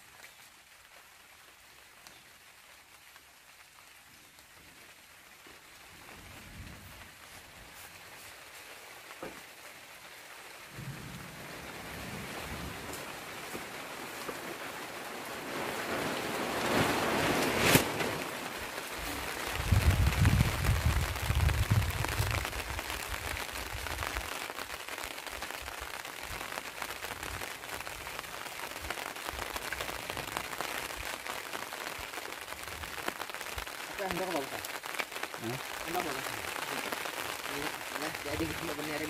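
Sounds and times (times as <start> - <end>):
rain falling: 0.0 - 39.0
low rumbling: 10.7 - 13.4.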